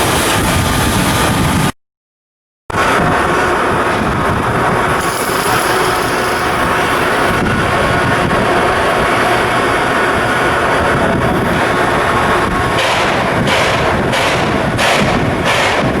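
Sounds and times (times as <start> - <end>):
shipyard work noise: 0.0 - 1.8, 2.7 - 16.0
hissing bursts: 5.0 - 7.4.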